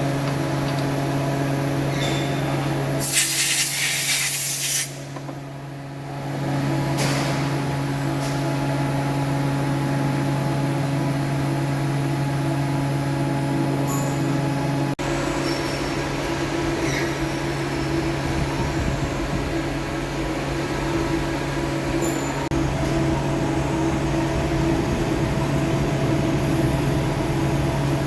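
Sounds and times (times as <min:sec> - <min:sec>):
workshop machine hum: 0:00.0 - 0:28.0
burst of hissing air: 0:03.0 - 0:05.0.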